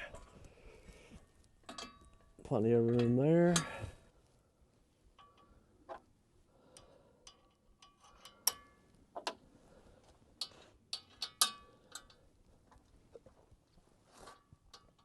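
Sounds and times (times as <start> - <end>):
metallic clinks and taps: 1.6 - 3.8, 5.2 - 5.7, 6.7 - 9.4, 10.4 - 12.2.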